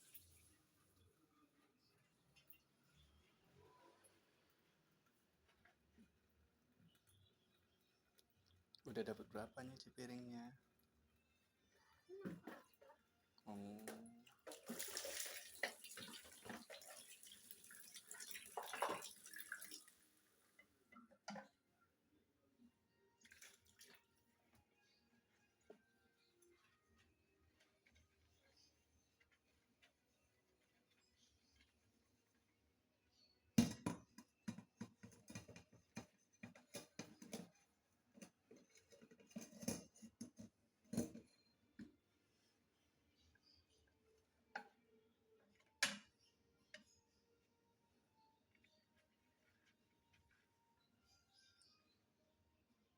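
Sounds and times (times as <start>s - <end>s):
tap water running into sink: 13.8s - 20.0s.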